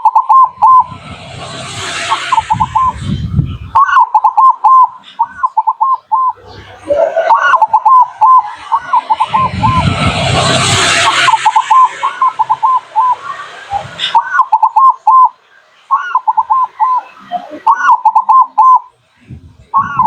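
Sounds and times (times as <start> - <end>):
loud rushing noise: 0.2 - 3.8, 6.4 - 14.3
dove cooing: 3.8 - 9.5, 15.9 - 18.9.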